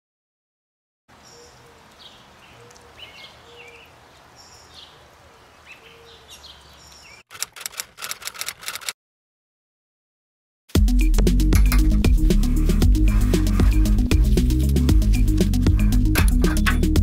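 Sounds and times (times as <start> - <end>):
small birds chirping: 1.1 - 7.3
rapid sharp clicks: 7.3 - 9.0.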